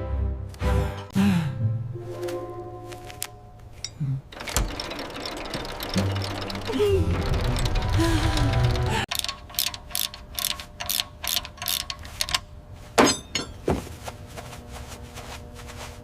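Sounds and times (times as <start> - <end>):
rapid mechanical clicking: 4.3 - 12.5.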